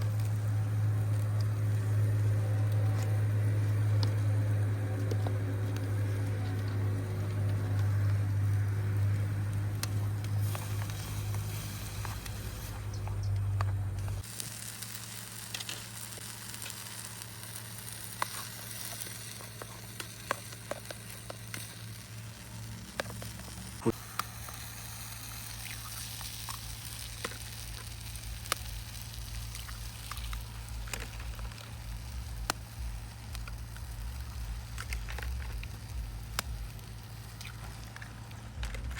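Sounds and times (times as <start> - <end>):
pops and crackles: 0.0 - 38.9
food sizzling in a pan: 7.8 - 13.0, 14.2 - 38.3
low rumble: 21.7 - 38.9.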